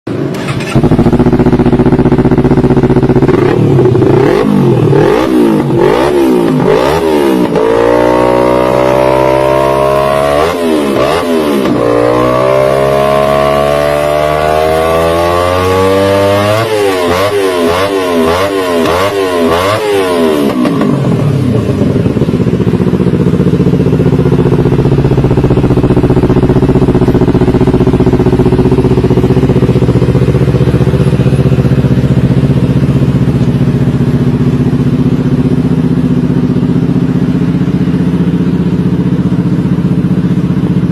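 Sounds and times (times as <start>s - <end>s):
motorcycle engine revving: 0.1s - 40.9s.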